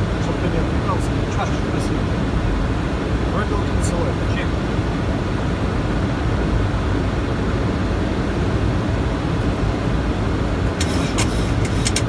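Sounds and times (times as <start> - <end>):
airliner cockpit rushing noise: 9.2 - 12.0
sharp clicks: 10.6 - 12.0.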